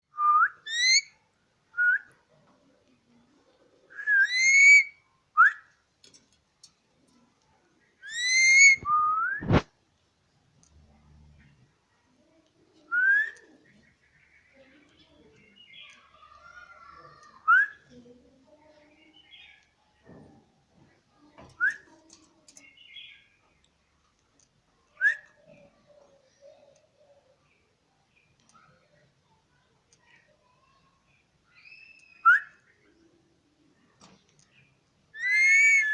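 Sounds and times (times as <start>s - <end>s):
parrot whistling: 0.6s - 1.1s, 4.1s - 4.9s, 8.1s - 9.1s, 35.2s - 35.9s
parrot rising whistles: 8.1s - 9.6s, 35.2s - 35.9s.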